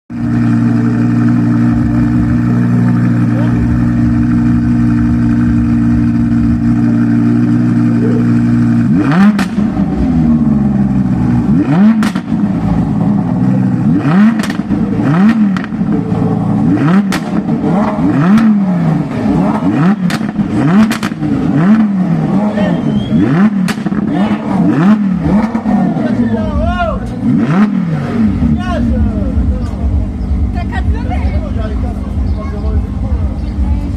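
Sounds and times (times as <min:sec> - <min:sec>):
car engine running: 0:00.1 - 0:33.9
engine revs with sharp cracks: 0:04.5 - 0:30.5.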